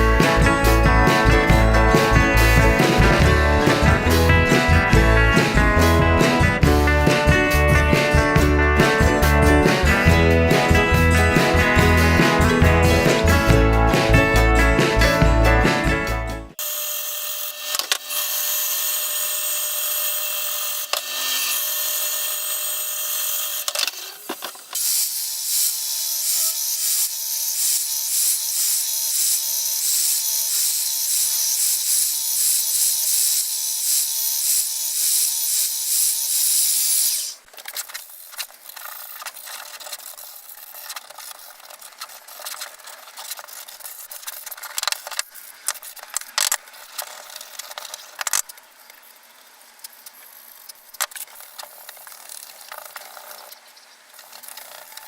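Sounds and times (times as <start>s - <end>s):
router whining through plywood: 16.6s - 37.4s
scratching and rubbing: 36.9s - 48.5s.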